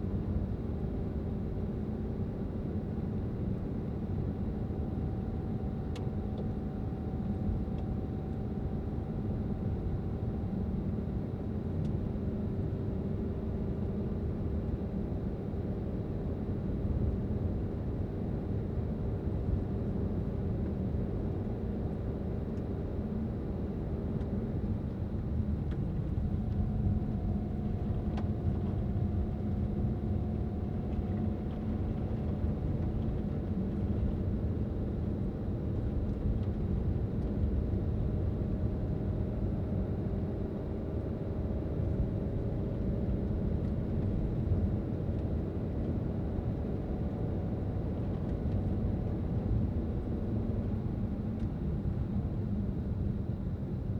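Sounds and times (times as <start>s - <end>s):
car engine and road noise: 24.6s - 34.4s.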